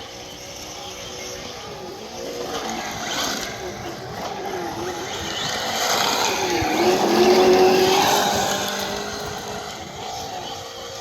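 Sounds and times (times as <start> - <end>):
toy truck motor whine: 0.0 - 11.0.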